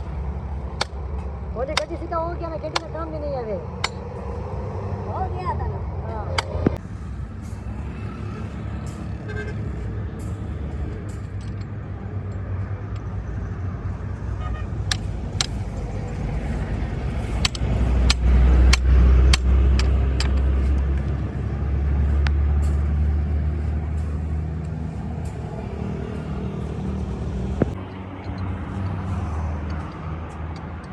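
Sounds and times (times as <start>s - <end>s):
sharp metallic clicks: 0.0s - 3.0s, 3.8s - 4.1s, 6.3s - 6.8s, 14.8s - 16.3s, 17.1s - 21.3s
heavy vehicle engine rumble: 0.0s - 30.9s.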